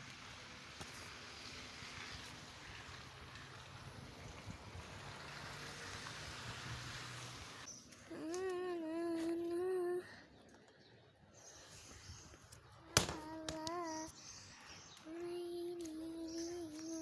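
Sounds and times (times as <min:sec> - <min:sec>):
rain falling: 0:00.0 - 0:07.7.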